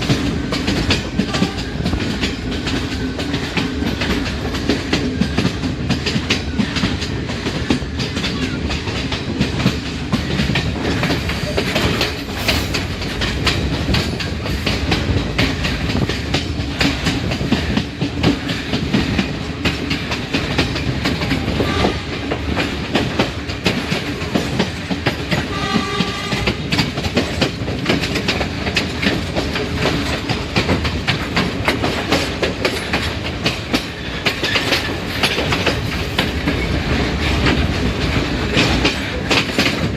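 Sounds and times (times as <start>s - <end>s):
train rumbling: 0.0s - 39.9s
train horn: 1.2s - 2.0s, 21.4s - 22.4s, 25.4s - 26.8s.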